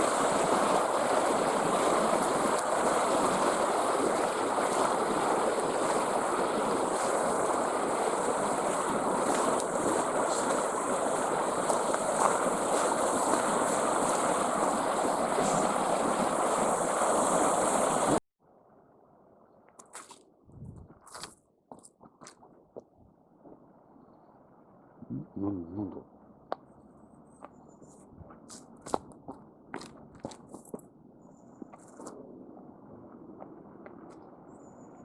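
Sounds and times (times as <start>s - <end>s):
river water rushing: 0.0s - 18.2s.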